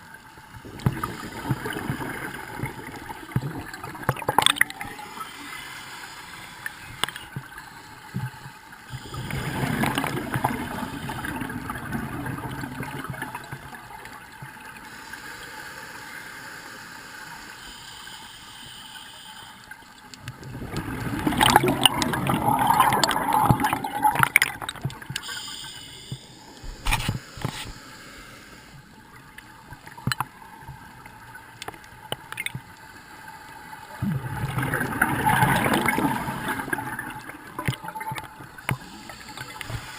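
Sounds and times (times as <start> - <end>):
regulator bubbling gurgles: 0.0 - 5.3, 8.9 - 14.8, 20.2 - 25.3, 33.9 - 39.9
regulator hissing: 25.2 - 28.7.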